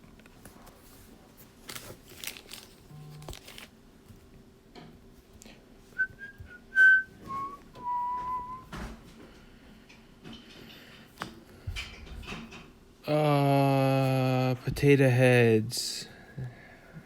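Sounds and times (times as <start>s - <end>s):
rustling and handling noise: 0.0s - 6.1s
person whistling: 6.0s - 8.7s.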